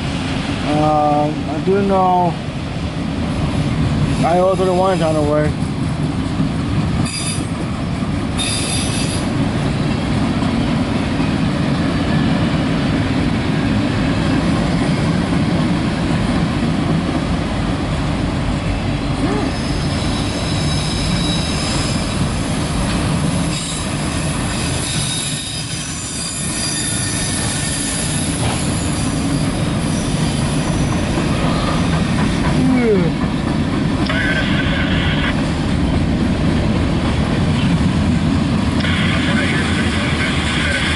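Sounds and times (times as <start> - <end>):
train wheels rumbling on rail: 0.0 - 40.9
high-pitched wheel squeal: 19.5 - 22.1, 24.8 - 31.8.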